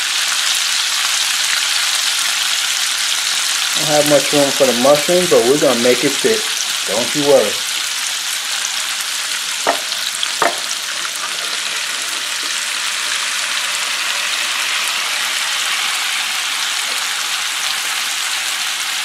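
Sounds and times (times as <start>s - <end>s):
vegetables sizzling on a griddle: 0.0s - 19.0s.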